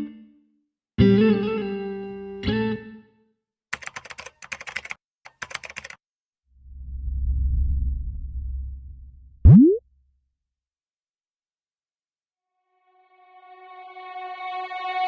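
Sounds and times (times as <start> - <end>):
low rumble: 6.6 - 9.2.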